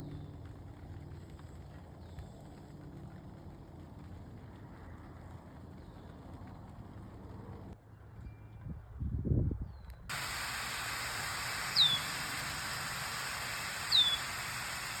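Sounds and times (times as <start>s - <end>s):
falling bird calls: 10.1s - 15.0s
steady hiss: 10.1s - 15.0s.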